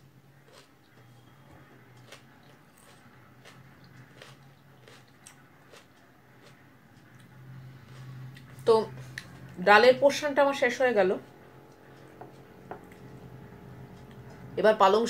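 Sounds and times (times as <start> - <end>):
low steady hum: 0.0 - 15.0
person chewing: 0.4 - 9.6, 11.7 - 14.5.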